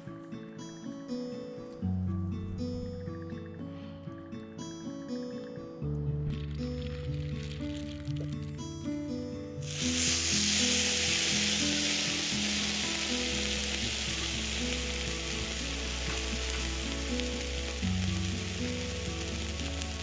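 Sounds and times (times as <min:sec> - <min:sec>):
food frying sizzle: 0:09.6 - 0:20.0.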